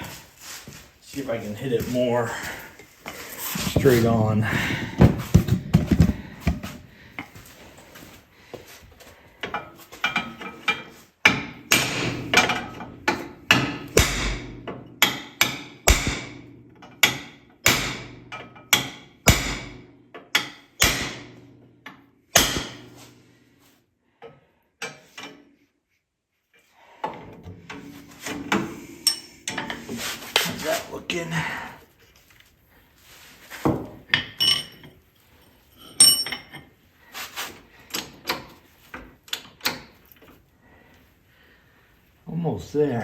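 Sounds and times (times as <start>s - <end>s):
hammer striking steel punch: 11.3s - 19.8s, 20.4s - 21.4s, 22.3s - 22.9s.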